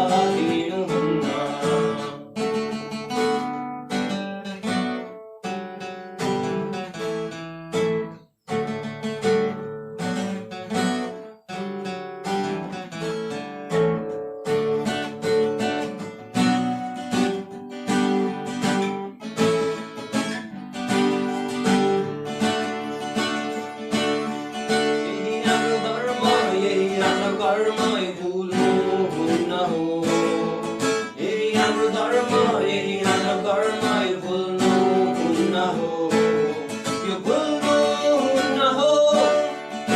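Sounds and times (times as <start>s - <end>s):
acoustic guitar chords: 0.0s - 39.9s.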